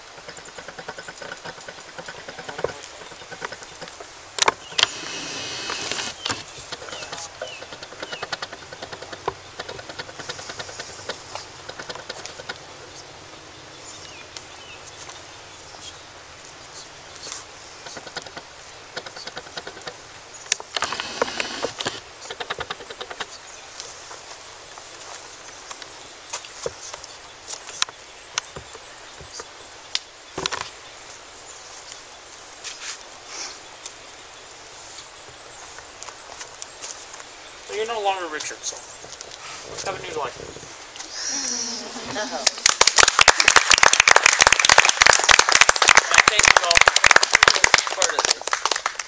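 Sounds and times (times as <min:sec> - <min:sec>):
clicks and rustles of handling: 0:00.1 - 0:05.0, 0:05.6 - 0:12.6.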